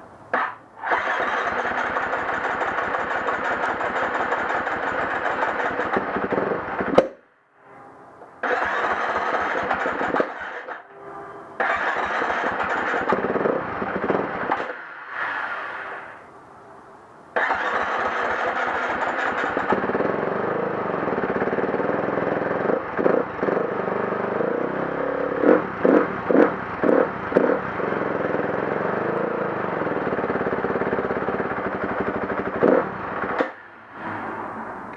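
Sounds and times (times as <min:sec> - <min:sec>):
dirt bike engine cranking: 0:00.3 - 0:07.0, 0:08.4 - 0:10.8, 0:11.6 - 0:14.8, 0:17.4 - 0:24.4, 0:29.7 - 0:33.6
dirt bike engine running: 0:00.4 - 0:07.0, 0:11.7 - 0:14.7, 0:17.4 - 0:33.6.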